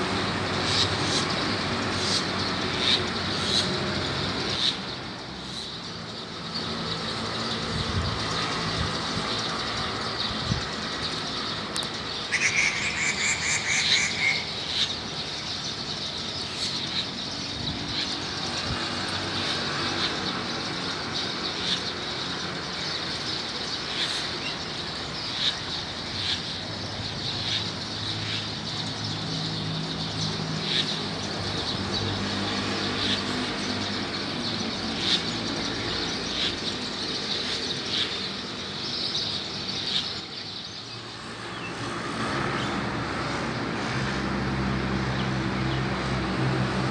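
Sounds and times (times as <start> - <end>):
rapid trilling bird call: 0.0 - 18.7
birds chirping: 0.0 - 46.9.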